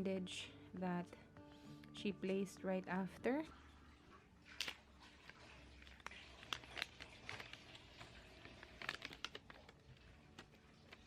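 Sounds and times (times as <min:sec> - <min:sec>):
film dressing crinkling and clicking: 0:04.5 - 0:11.0.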